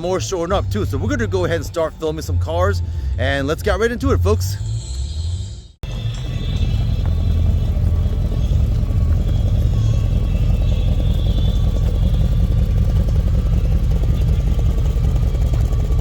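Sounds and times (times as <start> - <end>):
car engine running: 5.8 - 16.0.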